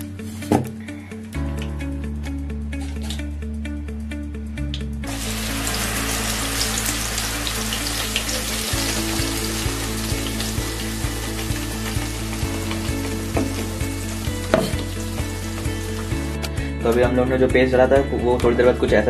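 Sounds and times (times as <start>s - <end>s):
background music with a beat: 0.0s - 7.6s, 8.6s - 19.0s
paste sizzling in hot oil: 5.1s - 16.2s.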